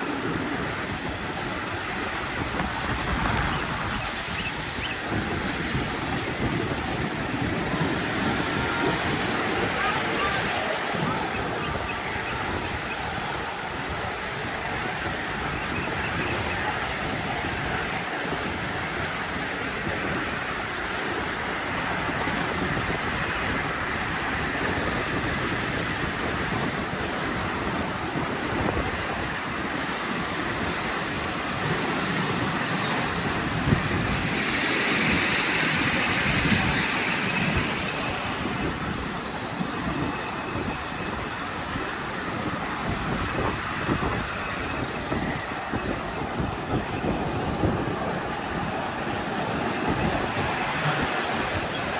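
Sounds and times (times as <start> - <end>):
miniature train wheels on rail: 0.0 - 51.9.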